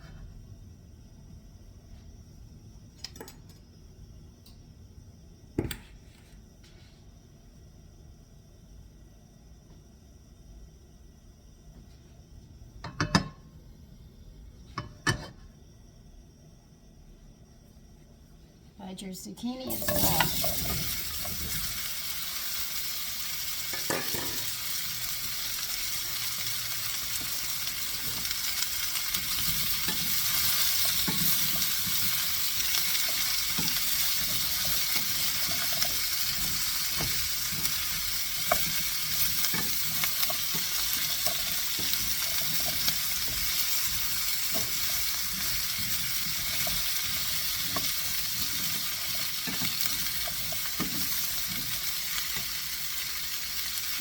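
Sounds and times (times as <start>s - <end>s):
vegetables sizzling in oil: 19.5s - 54.0s.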